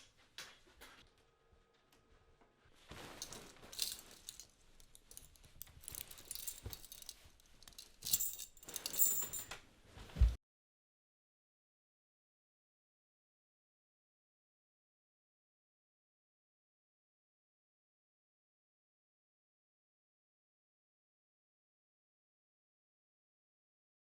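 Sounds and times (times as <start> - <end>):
small metal objects jingling: 3.2 - 9.5.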